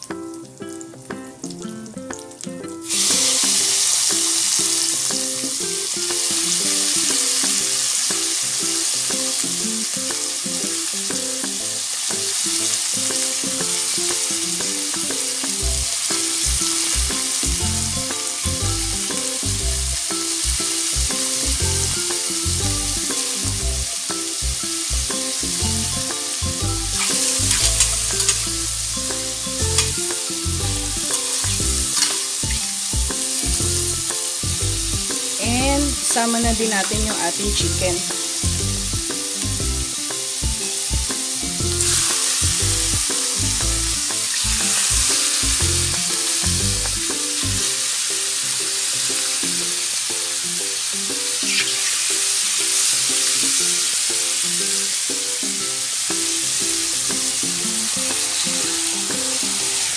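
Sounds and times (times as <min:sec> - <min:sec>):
food sizzling in a pan: 0:00.0 - 0:59.9
spatula stirring pan: 0:27.0 - 0:33.4.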